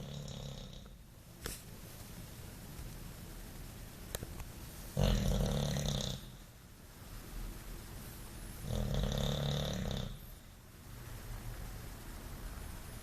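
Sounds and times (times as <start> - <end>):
dog snoring: 0.0 - 1.0, 5.0 - 6.4, 8.6 - 10.3.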